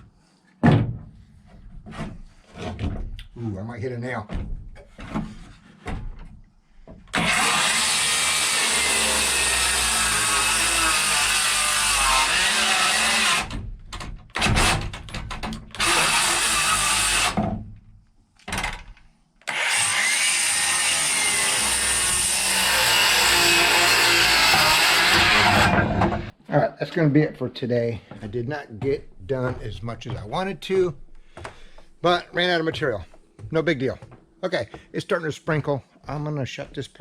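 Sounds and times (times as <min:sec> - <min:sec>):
power saw cutting wood: 0:07.1 - 0:13.7, 0:15.7 - 0:17.4, 0:19.4 - 0:26.3.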